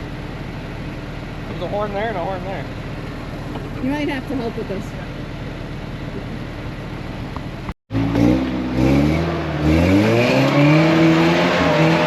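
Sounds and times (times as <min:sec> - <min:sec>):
off-road vehicle engine revving: 0:03.7 - 0:12.0.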